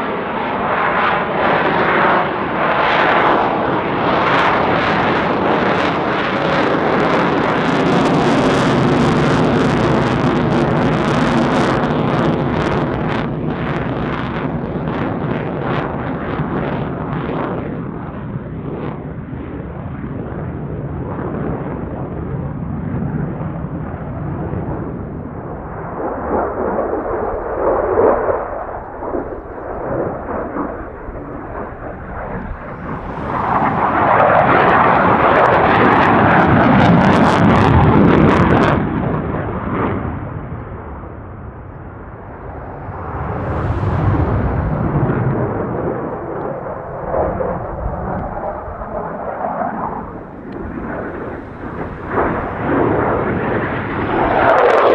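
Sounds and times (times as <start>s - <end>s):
jet engine rumble: 0.0s - 54.9s.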